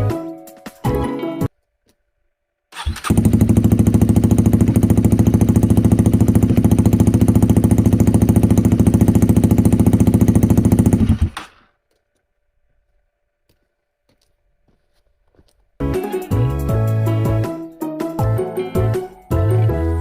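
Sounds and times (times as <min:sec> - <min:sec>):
motorcycle engine idling: 0:02.8 - 0:11.4.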